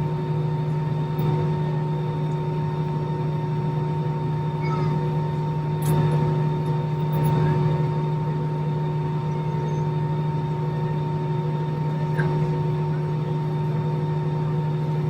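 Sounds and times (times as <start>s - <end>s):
jet engines idling: 0.0s - 15.0s.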